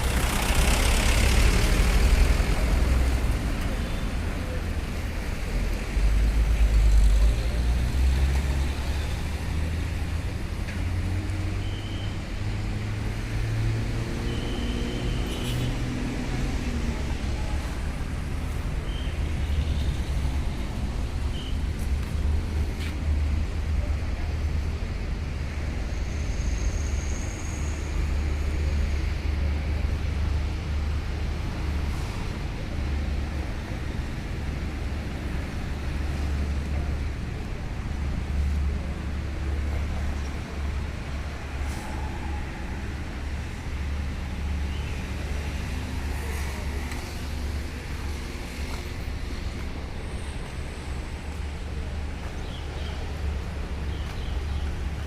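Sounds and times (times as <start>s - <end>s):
truck engine rumbling: 0.0s - 11.4s
road traffic noise: 0.0s - 55.0s.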